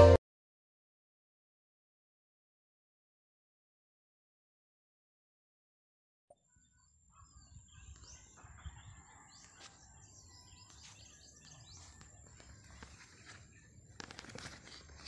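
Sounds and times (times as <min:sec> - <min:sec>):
steady high-pitched tone: 0:00.0 - 0:00.2
faint birds chirping: 0:06.3 - 0:15.0.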